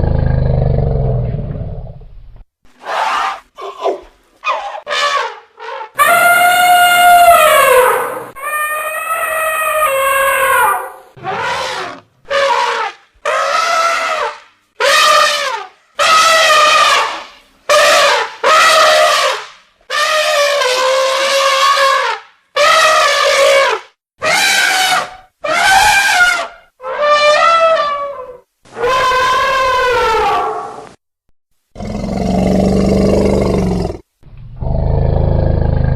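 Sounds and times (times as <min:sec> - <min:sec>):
elephants trumpeting: 0:02.8 - 0:30.8.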